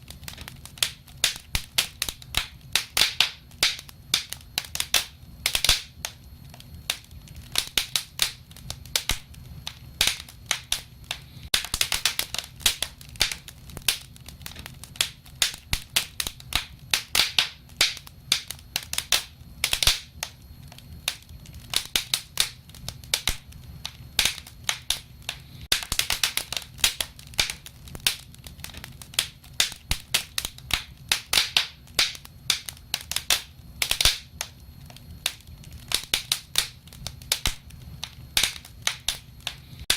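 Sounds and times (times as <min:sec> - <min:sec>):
low fire rumble: 0:00.0 - 0:39.9
wood fire snaps and pops: 0:00.0 - 0:39.9.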